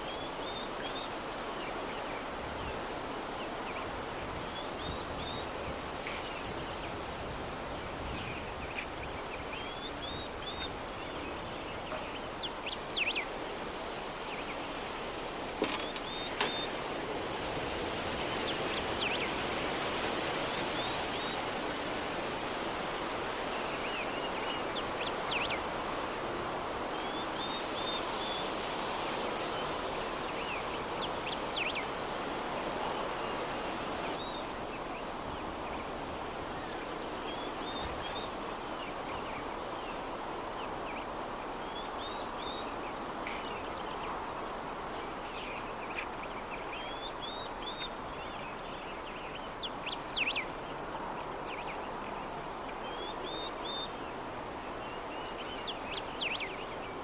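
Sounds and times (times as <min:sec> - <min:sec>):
soft breeze: 0:00.0 - 0:57.0
small birds chirping: 0:08.0 - 0:17.2.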